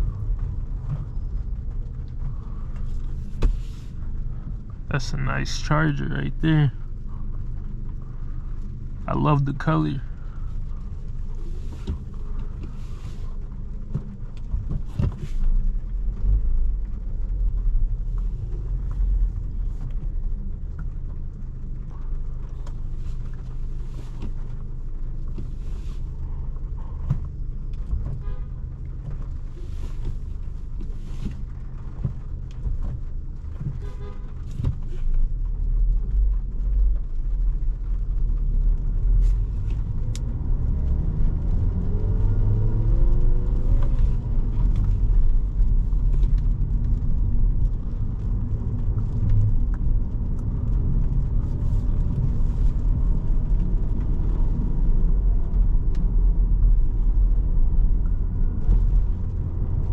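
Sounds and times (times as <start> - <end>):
car idling rumble: 0.0 - 59.9
car horn: 28.2 - 28.5, 33.8 - 34.4.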